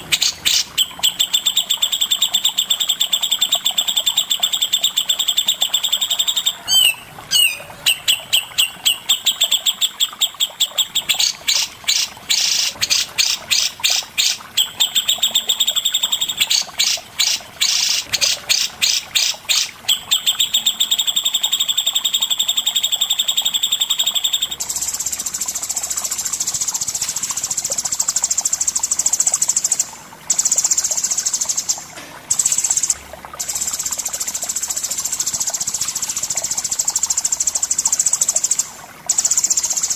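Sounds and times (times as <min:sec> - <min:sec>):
songbird singing trills: 0:00.1 - 0:24.9.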